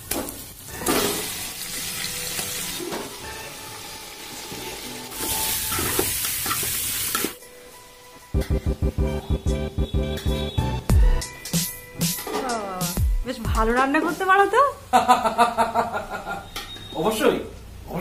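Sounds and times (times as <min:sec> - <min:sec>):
chicken sizzling in a pot: 0:00.0 - 0:07.9
music with a beat: 0:07.4 - 0:13.9.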